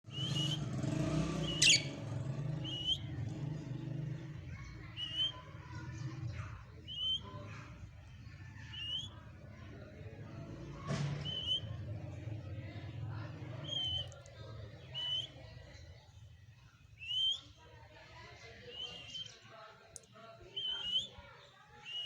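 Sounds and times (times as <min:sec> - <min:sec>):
parrot chirping: 0:01.4 - 0:02.0.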